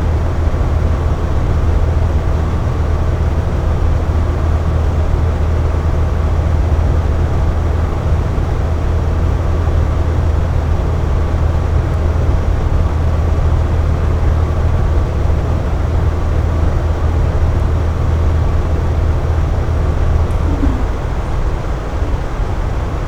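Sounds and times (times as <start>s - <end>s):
air conditioner humming: 4.8s - 23.0s.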